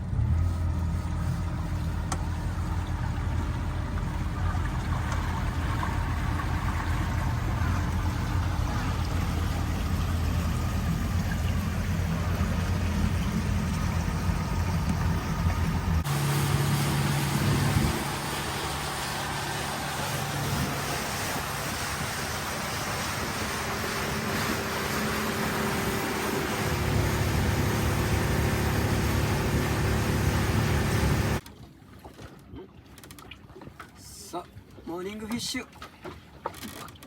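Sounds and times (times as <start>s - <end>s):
boat engine humming: 0.0s - 37.0s.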